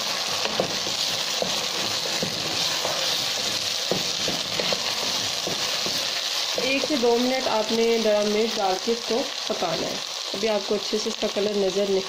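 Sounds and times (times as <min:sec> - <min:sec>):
wooden spoon scraping a pan: 0:00.0 - 0:07.4
potatoes sizzling in hot oil: 0:00.0 - 0:12.0.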